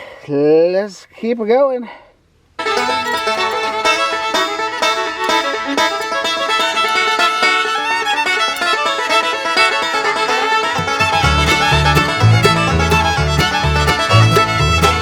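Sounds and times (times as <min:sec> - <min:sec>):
bluegrass fiddle music: 0:02.6 - 0:15.0
bass line: 0:10.7 - 0:15.0.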